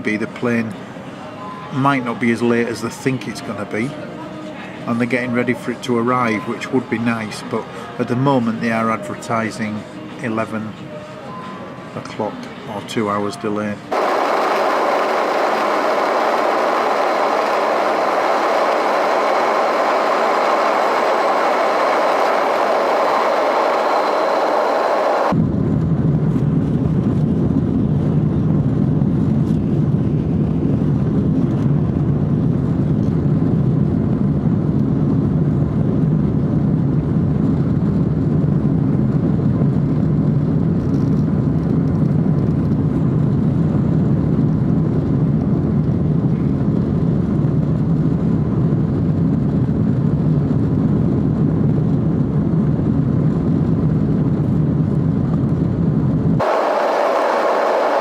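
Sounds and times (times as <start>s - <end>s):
vehicle droning in motion: 13.9s - 25.4s, 56.4s - 58.0s.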